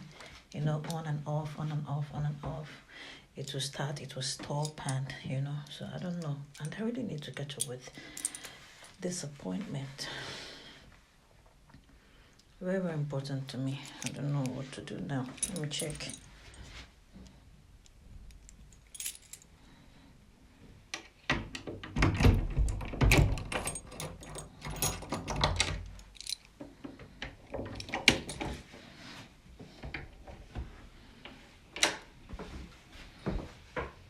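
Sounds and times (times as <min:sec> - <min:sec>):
light jingling: 0:04.5 - 0:08.6, 0:13.6 - 0:16.7, 0:18.3 - 0:19.5, 0:23.5 - 0:26.6.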